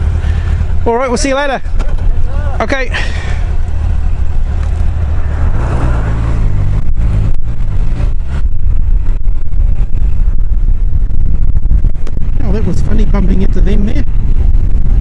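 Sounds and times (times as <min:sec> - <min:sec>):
wind rumble on microphone: 0:00.0 - 0:15.0
motorcycle engine pulling away: 0:03.2 - 0:09.4.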